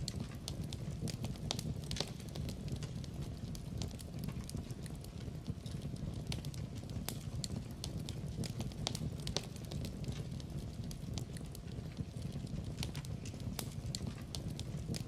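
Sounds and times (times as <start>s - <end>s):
low rumble of flames: 0.0s - 15.0s
wood fire crackling: 0.0s - 15.0s.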